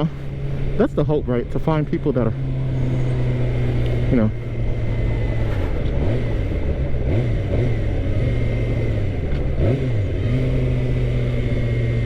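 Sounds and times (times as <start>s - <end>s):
motorcycle engine running: 0.0s - 12.0s
wind rush: 2.4s - 7.2s.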